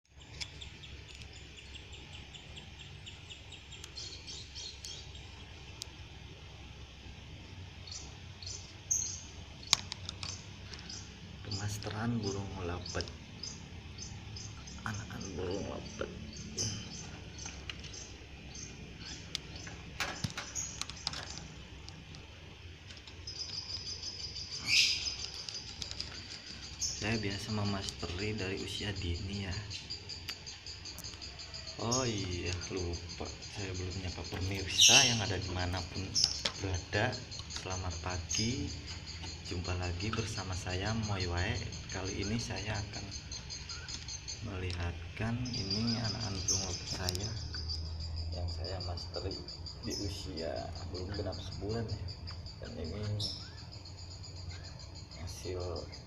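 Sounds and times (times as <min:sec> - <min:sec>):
small birds chirping: 0:00.0 - 0:56.0
steady low hum: 0:00.1 - 0:56.0
sharp clicks: 0:09.6 - 0:11.0, 0:16.9 - 0:28.2.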